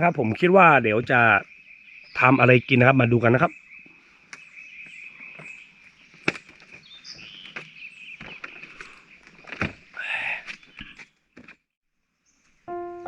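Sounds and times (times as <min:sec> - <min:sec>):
bird chirps: 0:00.0 - 0:09.3, 0:10.2 - 0:11.2.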